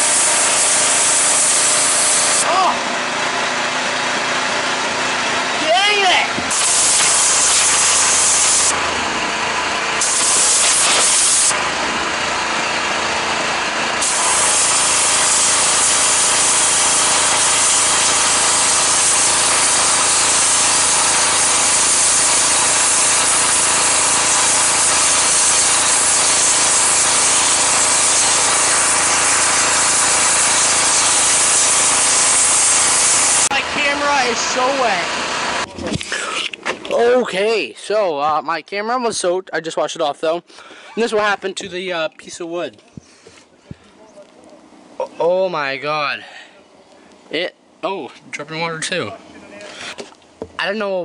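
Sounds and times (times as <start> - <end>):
pressure washer spray hiss: 0.0 - 2.5, 6.4 - 8.9, 10.0 - 11.7, 14.0 - 36.5
pressure washer engine hum: 0.0 - 37.7.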